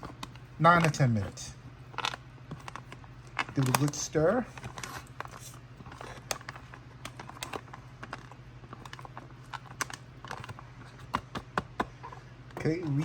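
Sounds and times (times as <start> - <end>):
spoon stirring in plastic pouch: 2.0 - 11.3.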